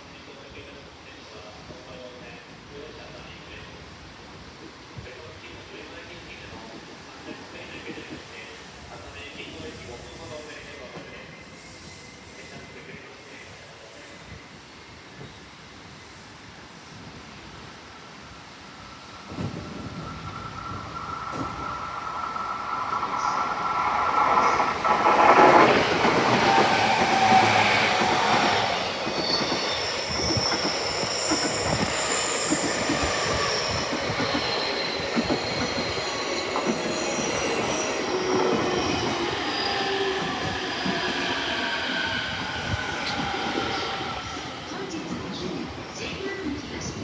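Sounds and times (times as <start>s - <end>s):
train wheels rumbling on rails: 17.1s - 47.0s
high held squeals: 18.0s - 46.0s.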